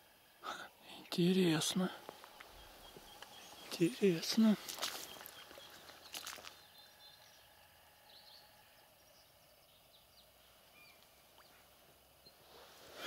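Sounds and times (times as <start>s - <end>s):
faint bird chirps: 0.4s - 12.5s.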